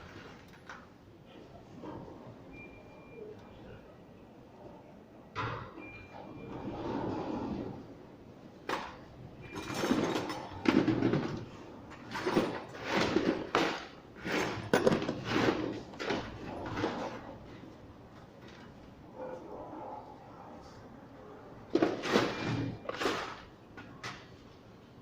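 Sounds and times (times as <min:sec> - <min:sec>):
sliding door rumbling on track: 0:06.3 - 0:07.9.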